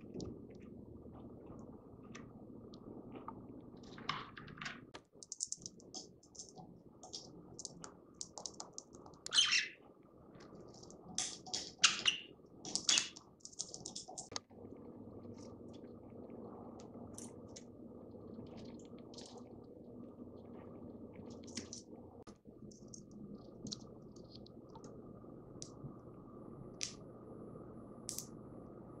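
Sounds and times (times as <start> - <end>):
budgerigar chirping: 9.3 - 9.7.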